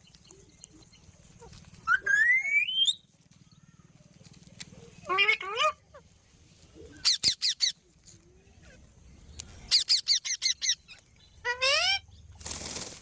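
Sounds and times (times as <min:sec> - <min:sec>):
parrot squeaky calls: 0:05.0 - 0:06.0, 0:07.0 - 0:07.8, 0:09.7 - 0:12.0.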